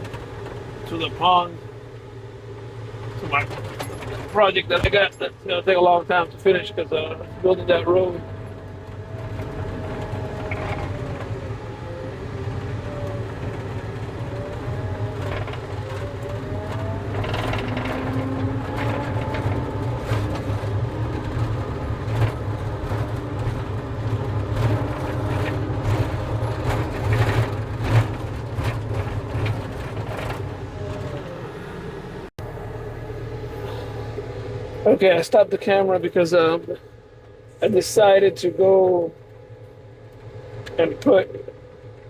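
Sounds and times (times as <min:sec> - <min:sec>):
skid steer engine drone: 0:00.0 - 0:42.0
clanks and rattles: 0:02.6 - 0:11.4, 0:13.1 - 0:31.4.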